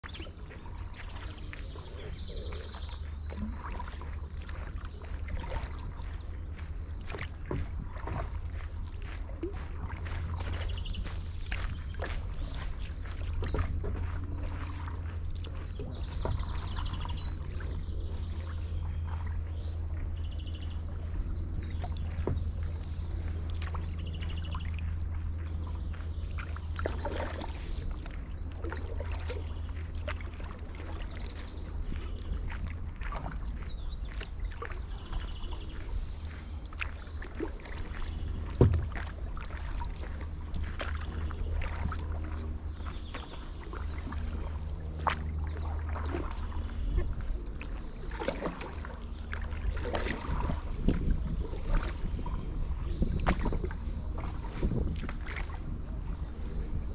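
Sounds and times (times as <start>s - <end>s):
birds singing trills: 0.0s - 7.2s, 9.9s - 56.9s
low rumble: 0.0s - 56.9s
paddle strokes in water: 0.0s - 56.9s
water splashing and dripping: 1.1s - 20.1s, 20.9s - 56.1s.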